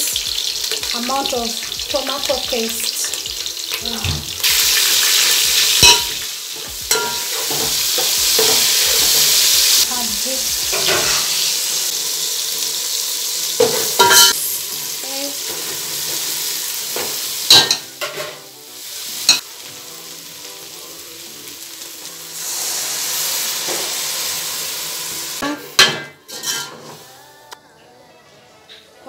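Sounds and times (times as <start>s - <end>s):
food sizzling in hot oil: 0.0s - 27.3s
metal spoon clinking on pot: 5.8s - 6.2s, 6.9s - 7.4s, 14.0s - 14.4s.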